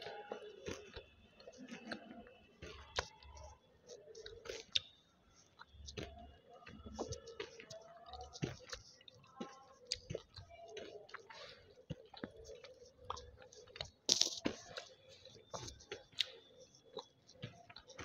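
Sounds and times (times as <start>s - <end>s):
chewing hard crunchy food: 0.0s - 18.0s
mouth clicks: 11.9s - 14.9s.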